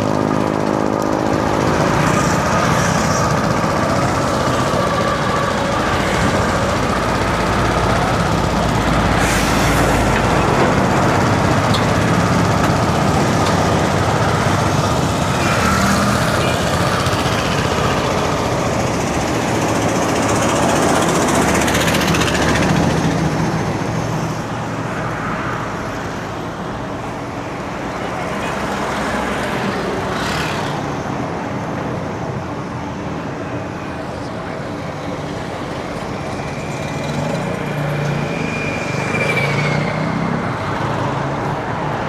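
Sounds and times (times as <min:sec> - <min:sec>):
road traffic: 0:00.0 - 0:42.0.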